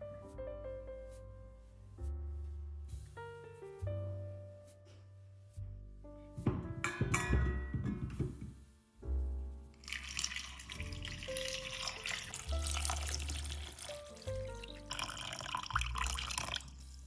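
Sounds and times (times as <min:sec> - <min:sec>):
background music with bass: 0:00.0 - 0:09.8, 0:10.8 - 0:17.0
running water: 0:09.8 - 0:17.0.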